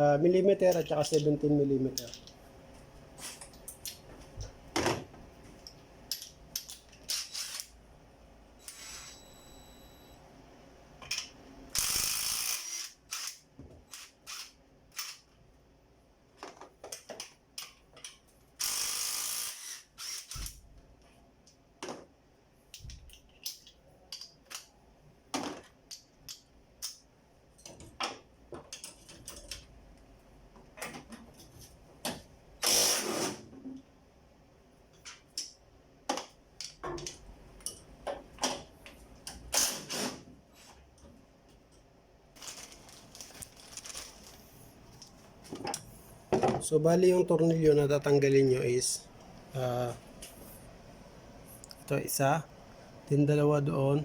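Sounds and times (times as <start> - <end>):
ratchet wrench clicking: 6.1 - 7.8, 11.7 - 15.3, 18.6 - 20.6.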